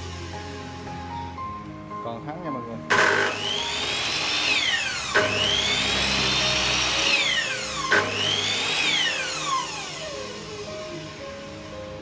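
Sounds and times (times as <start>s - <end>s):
miter saw motor whine: 2.9s - 12.0s.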